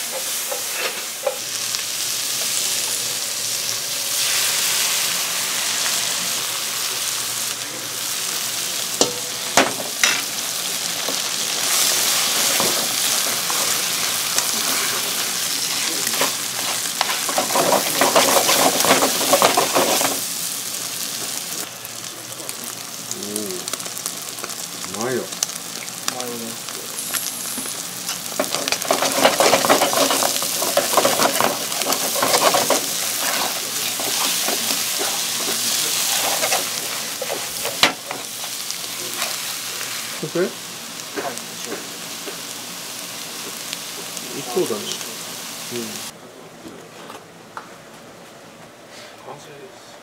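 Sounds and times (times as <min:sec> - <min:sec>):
eggs and onion sizzling in a pan: 0:00.0 - 0:46.2
chopsticks stirring: 0:15.7 - 0:20.1, 0:28.4 - 0:38.2.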